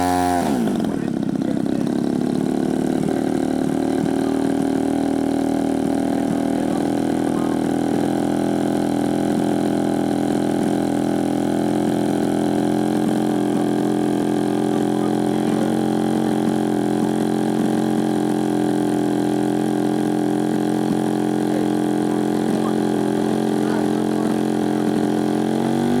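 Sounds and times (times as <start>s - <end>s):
two-stroke engine idling: 0.0s - 26.0s.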